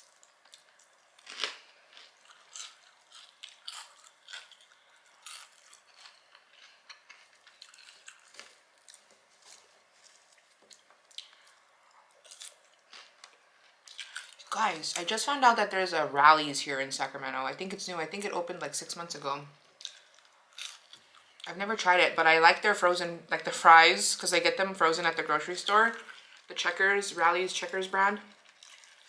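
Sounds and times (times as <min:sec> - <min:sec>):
crunching bites and chewing: 0:00.0 - 0:14.6, 0:19.8 - 0:21.5, 0:28.3 - 0:29.0.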